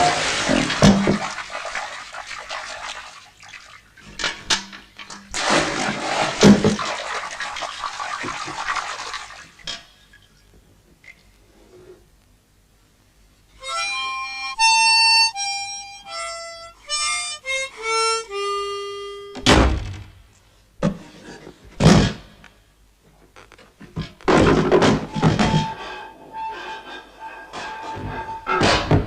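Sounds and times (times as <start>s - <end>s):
harmonica held notes: 13.6s - 19.4s
loud noisy thumps: 19.4s - 20.2s.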